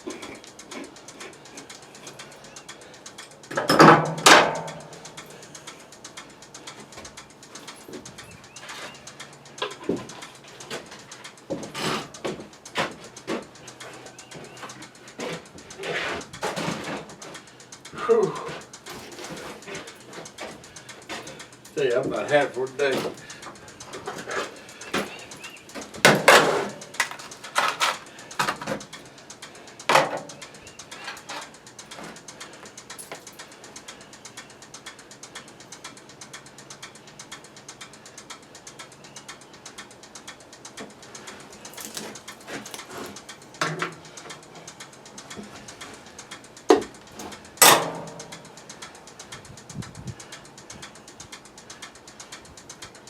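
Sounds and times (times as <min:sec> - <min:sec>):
tools and parts clattering: 0:03.5 - 0:05.7, 0:06.9 - 0:29.1, 0:29.9 - 0:33.4, 0:41.2 - 0:44.6.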